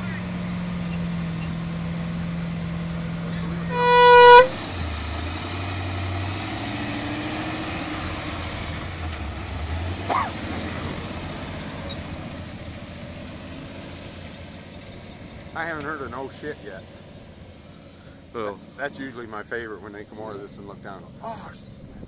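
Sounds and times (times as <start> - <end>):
truck engine running: 0.0 - 22.0
brief high squeal: 3.7 - 4.6.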